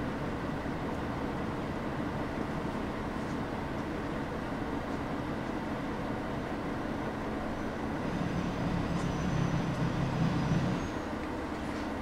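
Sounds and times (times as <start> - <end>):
low drone: 0.0 - 12.0
railcar cabin rumble: 0.0 - 12.0
faint high squeals: 8.4 - 11.2.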